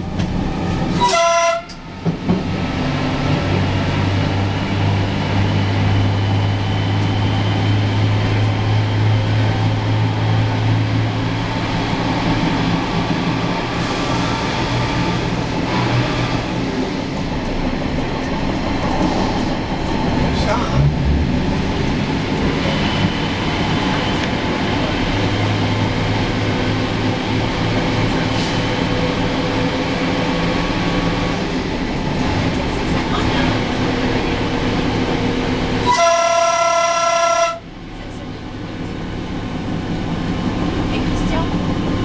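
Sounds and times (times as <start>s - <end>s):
train rumbling through tunnel: 0.0s - 42.0s
train horn: 1.0s - 1.9s, 35.8s - 37.7s.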